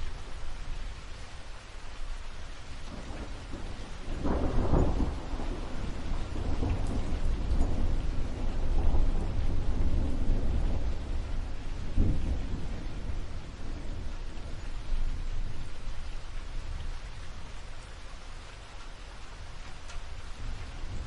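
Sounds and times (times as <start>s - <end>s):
steady rain: 0.0s - 21.0s
thunder rumbling: 2.9s - 17.8s, 19.4s - 21.0s.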